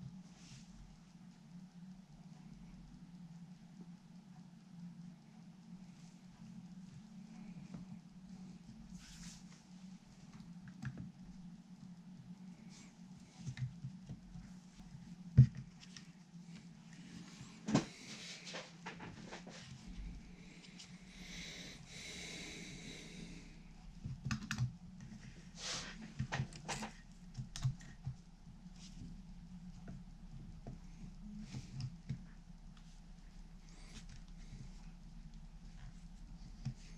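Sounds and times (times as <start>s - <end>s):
soft rubbing hiss: 0.0s - 24.2s, 24.8s - 27.3s, 27.9s - 36.9s
steady low hum: 0.0s - 36.9s
small taps and rustles: 5.8s - 21.0s, 26.0s - 36.9s.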